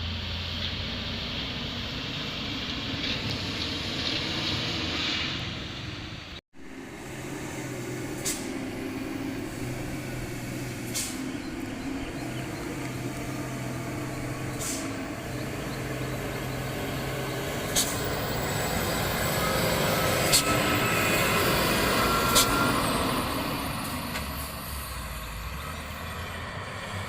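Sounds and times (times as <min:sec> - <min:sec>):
truck engine humming: 0:00.0 - 0:27.0
air brake hisses: 0:08.1 - 0:08.7, 0:10.9 - 0:11.3, 0:14.5 - 0:15.0, 0:17.8 - 0:18.0.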